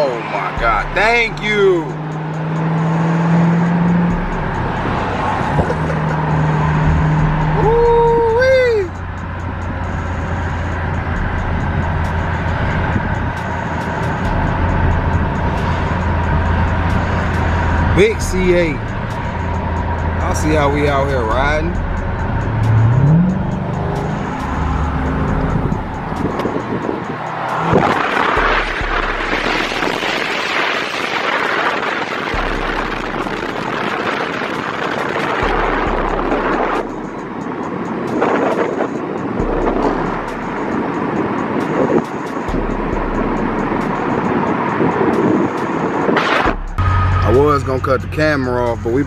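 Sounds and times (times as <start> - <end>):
car engine drone: 0.0 - 49.0
wind rush from moving vehicle: 0.0 - 49.0
low rumble: 3.0 - 26.8, 27.4 - 30.8, 32.3 - 34.8, 35.4 - 37.4, 39.4 - 40.7.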